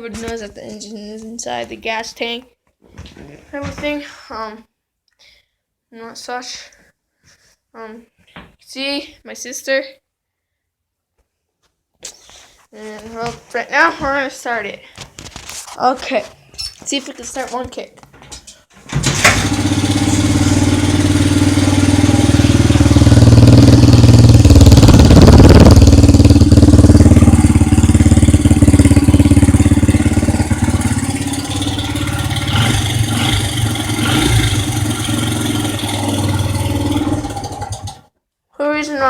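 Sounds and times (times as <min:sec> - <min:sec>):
dirt bike engine running: 0:19.0 - 0:38.1.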